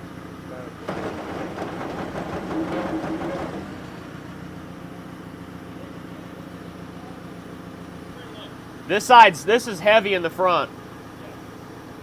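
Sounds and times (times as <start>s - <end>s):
machine engine idling: 0.5s - 8.8s
loud irregular noise: 0.8s - 4.4s.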